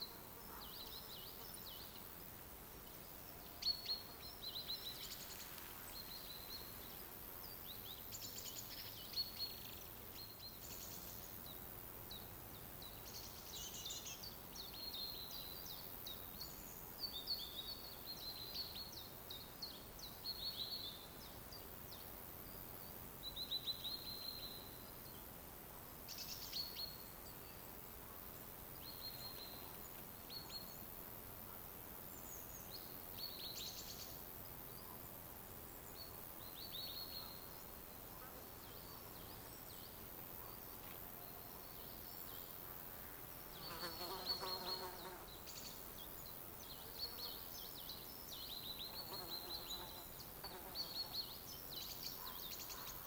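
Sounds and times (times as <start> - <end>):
faint forest hiss: 0.0 - 53.0
songbirds chirping and trilling: 26.0 - 53.0.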